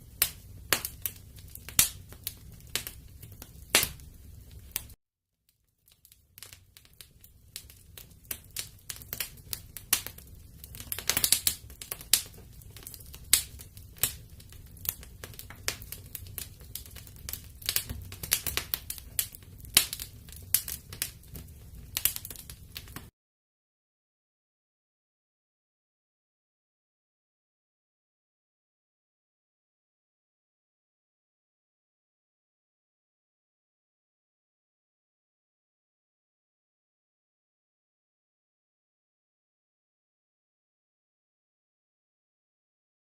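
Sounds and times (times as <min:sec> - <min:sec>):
wood fire crackling and popping: 0:00.0 - 0:05.0, 0:05.7 - 0:23.1.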